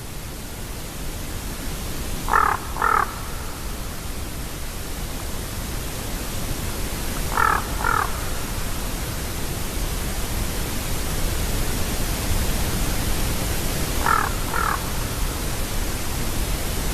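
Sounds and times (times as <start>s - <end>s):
background hiss: 0.0s - 16.9s
raven calling: 2.3s - 4.0s, 7.3s - 8.7s, 14.0s - 15.6s.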